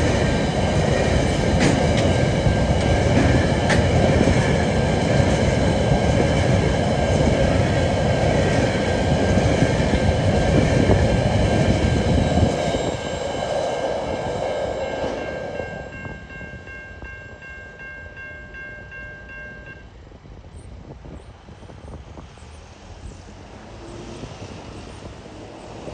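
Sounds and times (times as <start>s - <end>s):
train wagons rumbling and clattering: 0.0s - 25.9s
level crossing alarm ringing: 15.0s - 19.8s.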